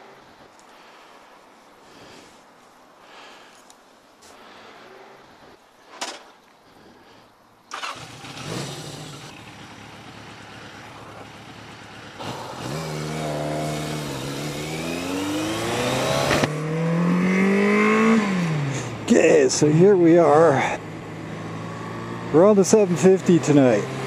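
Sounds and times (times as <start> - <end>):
motorcycle engine running: 7.8 - 19.0, 20.2 - 24.0.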